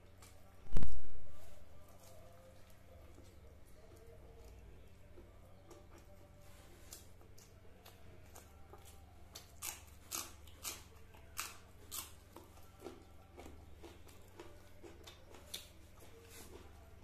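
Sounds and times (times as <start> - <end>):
person chewing crunchy food: 2.0 - 17.0.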